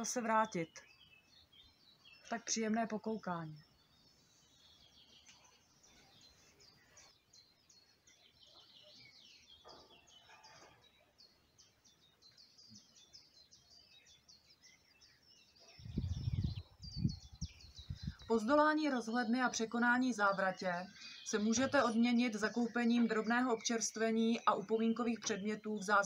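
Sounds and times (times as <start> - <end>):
faint birdsong chirps: 0.0 - 26.0
low rumbling noise: 15.8 - 18.3.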